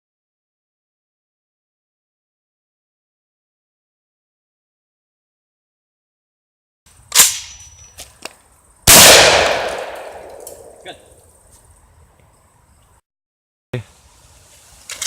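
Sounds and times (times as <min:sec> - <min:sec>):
gunshots: 0:08.9 - 0:10.9.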